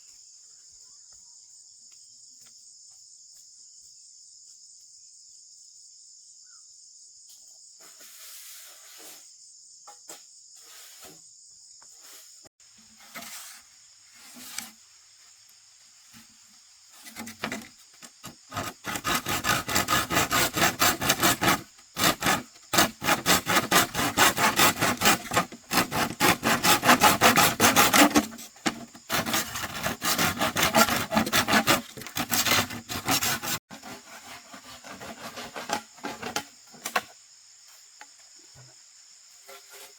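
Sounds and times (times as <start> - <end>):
crickets chirring: 0.0 - 39.9
rapid rhythmic rasping strokes: 18.2 - 33.6.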